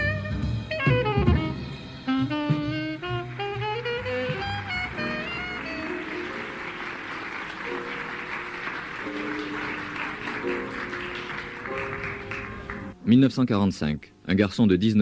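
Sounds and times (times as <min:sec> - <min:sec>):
held instrument notes: 0:00.7 - 0:13.4
audience applauding: 0:03.1 - 0:13.0.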